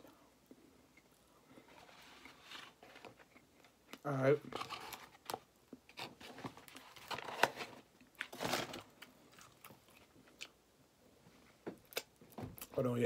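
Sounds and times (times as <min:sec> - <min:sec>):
person chewing and smacking: 0:09.0 - 0:10.6, 0:11.8 - 0:12.7.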